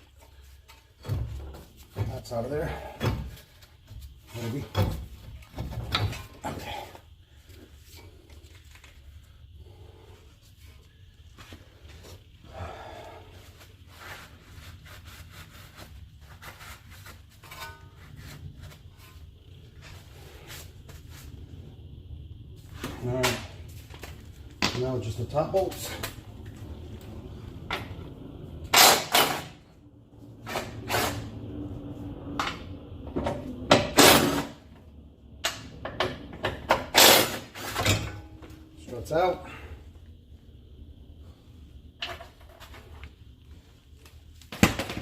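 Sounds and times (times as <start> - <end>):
steady low hum: 0.0 - 45.0
tools scraping and knocking: 16.3 - 19.2.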